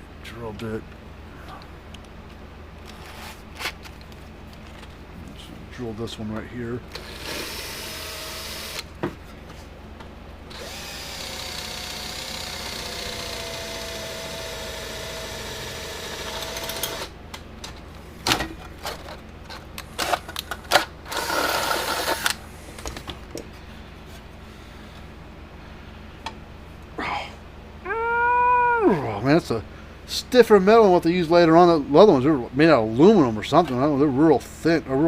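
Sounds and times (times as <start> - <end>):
electric drill boring into metal: 7.0 - 8.8, 10.5 - 17.1.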